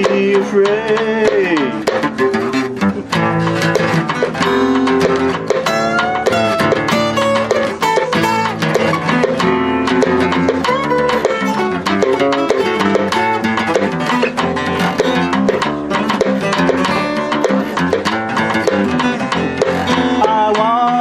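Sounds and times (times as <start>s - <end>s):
acoustic guitar strummed and plucked: 0.0s - 21.0s.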